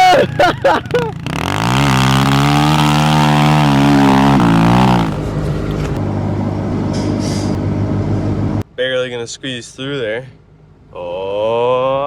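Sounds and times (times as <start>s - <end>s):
dirt bike engine revving: 0.0s - 6.0s.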